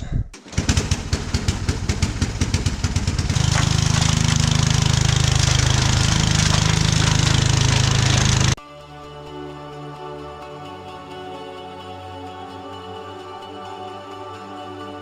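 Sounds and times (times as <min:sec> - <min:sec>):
blower rushing snow: 0:00.5 - 0:08.6
snowblower engine running: 0:00.5 - 0:08.6.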